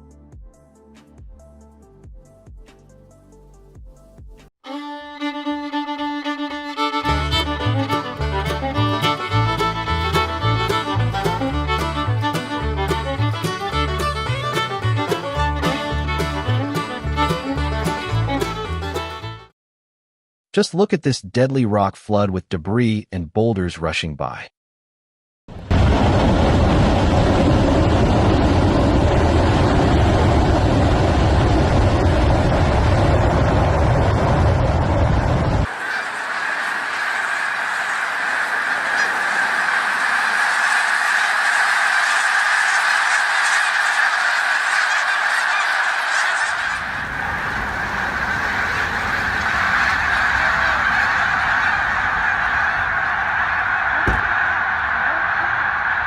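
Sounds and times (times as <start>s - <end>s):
deep rumble: 25.6s - 35.7s
single knock: 54.0s - 54.4s.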